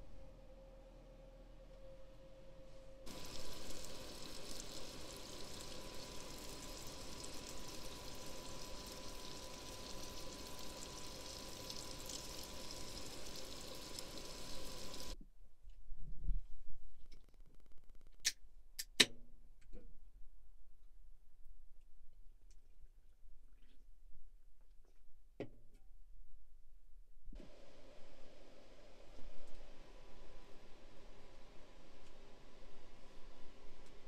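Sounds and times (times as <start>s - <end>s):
faint steady tone: 0.0s - 15.2s
sausage sizzling in a pan: 3.1s - 15.2s.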